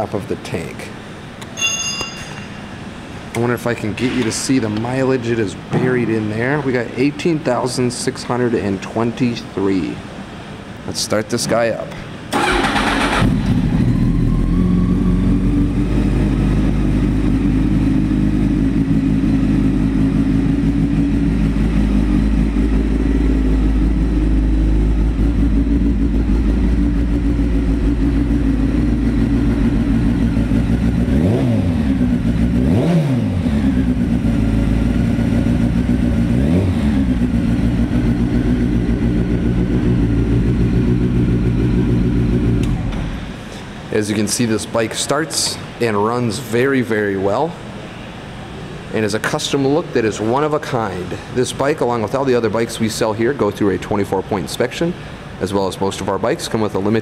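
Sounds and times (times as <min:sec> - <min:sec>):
engine revving: 0:12.3 - 0:43.4
motorcycle engine idling: 0:12.4 - 0:32.6, 0:33.5 - 0:43.8.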